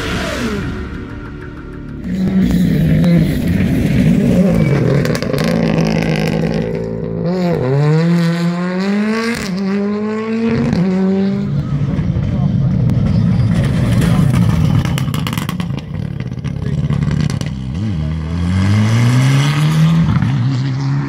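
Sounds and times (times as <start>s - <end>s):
rally car engine at full throttle: 0.0s - 21.0s.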